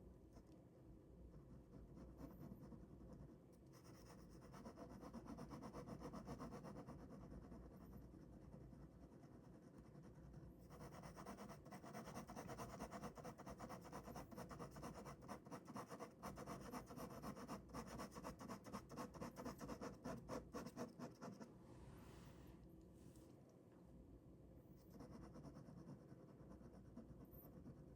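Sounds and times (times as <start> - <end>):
ballpoint pen scratching on paper: 1.3 - 21.5, 24.8 - 27.9.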